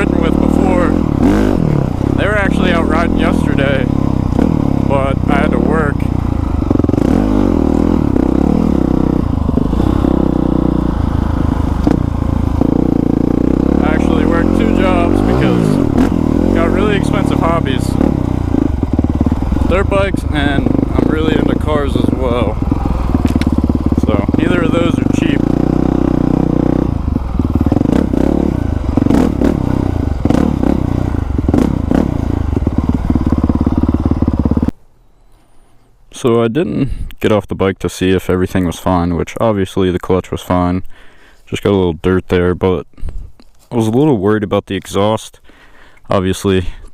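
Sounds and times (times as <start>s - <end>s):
dirt bike engine revving: 0.0s - 34.7s.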